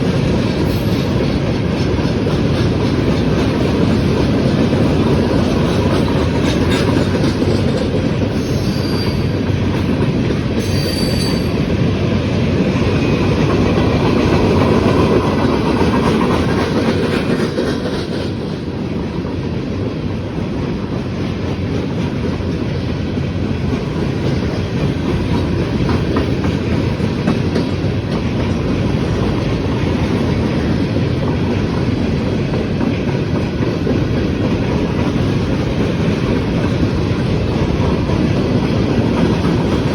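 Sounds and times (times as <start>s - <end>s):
clickety-clack over rail joints: 0.0s - 39.9s
steel wheels rumbling: 0.0s - 39.9s
high-pitched wheel squeals: 8.4s - 9.4s, 10.6s - 11.6s.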